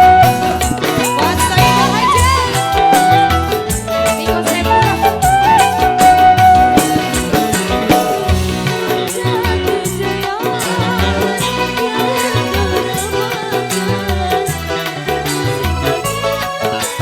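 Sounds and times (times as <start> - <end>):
drums and bass: 0.0 - 17.0
wavering melodic lead: 0.0 - 17.0.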